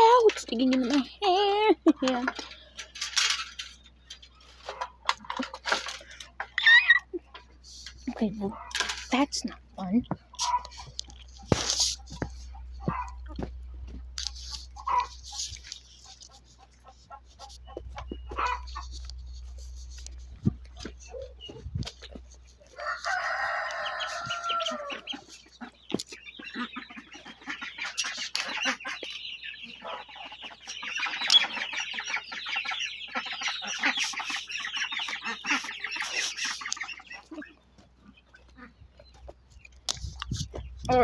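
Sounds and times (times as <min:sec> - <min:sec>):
chickens clucking: 0:00.0 - 0:41.0
rooster crowing: 0:22.8 - 0:25.1.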